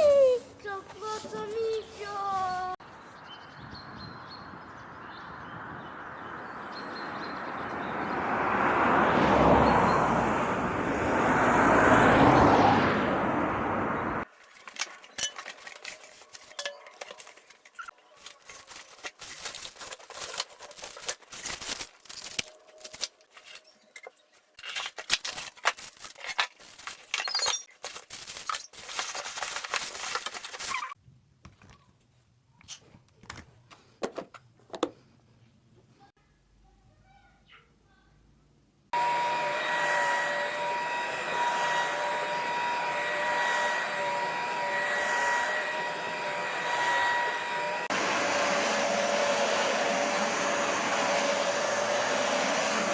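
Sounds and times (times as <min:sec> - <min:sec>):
clinks and clatter: 0:14.3 - 0:30.9.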